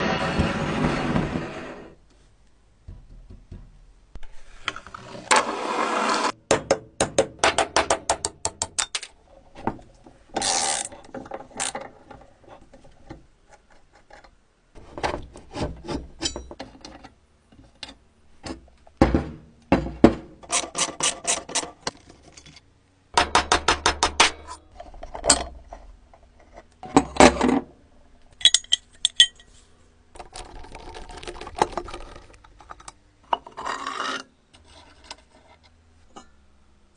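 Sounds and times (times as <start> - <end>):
metal scraping: 0.0 - 2.0.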